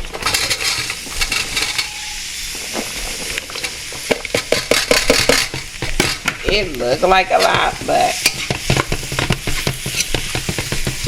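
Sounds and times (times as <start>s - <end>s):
food sizzling in hot oil: 0.0s - 11.0s
food stirred clattering against pan: 2.8s - 11.0s.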